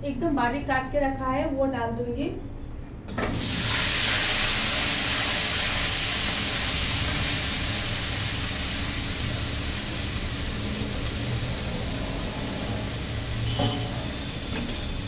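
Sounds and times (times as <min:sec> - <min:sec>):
vegetables sizzling in oil: 0:03.3 - 0:15.0.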